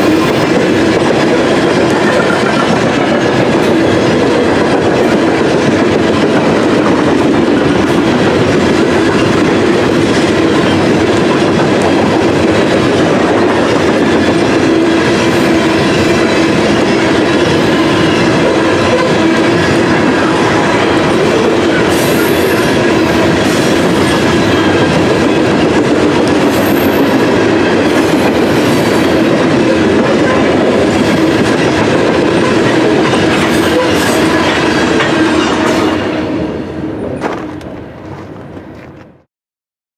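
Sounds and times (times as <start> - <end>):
wheels clacking over rails: 0.0 - 36.0
freight train rumbling past: 0.0 - 39.2.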